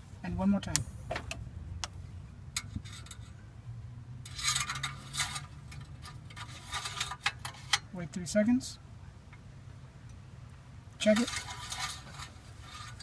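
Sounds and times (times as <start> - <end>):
dipstick scraping: 4.2 - 7.9, 11.0 - 13.0.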